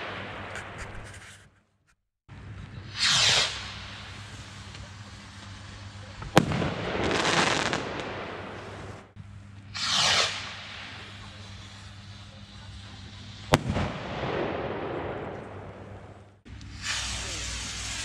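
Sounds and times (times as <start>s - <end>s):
fireworks hissing rush: 2.8s - 9.1s, 9.7s - 14.4s, 16.5s - 18.0s
firework bang: 3.0s - 4.2s, 6.2s - 9.1s, 9.8s - 11.2s, 13.5s - 15.3s.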